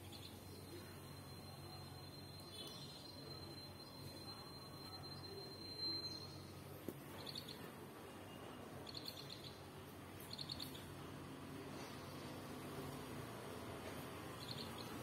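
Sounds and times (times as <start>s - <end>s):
thin steady high whistle: 0.0s - 6.7s
bird chirping trills: 14.4s - 15.0s.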